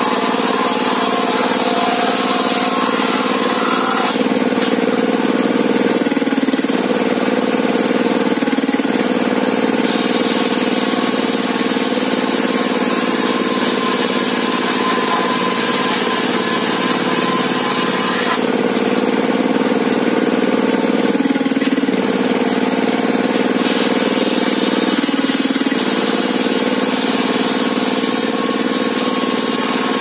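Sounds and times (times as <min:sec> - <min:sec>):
engine running: 0:00.0 - 0:30.0.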